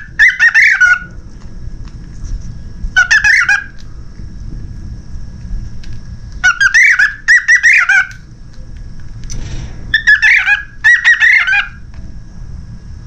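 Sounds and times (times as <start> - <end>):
cockatiel chirping: 0.0 - 1.1, 3.0 - 3.8, 6.4 - 8.2, 9.9 - 11.8.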